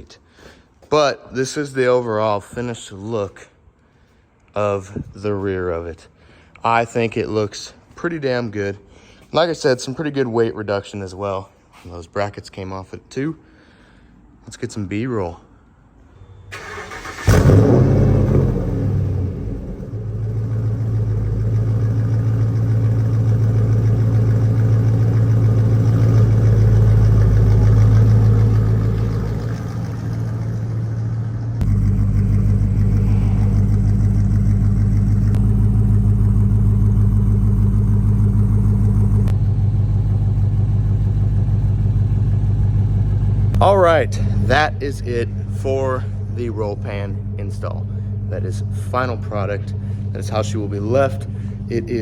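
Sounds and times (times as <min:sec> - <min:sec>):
pickup truck engine running: 0:16.5 - 0:52.0.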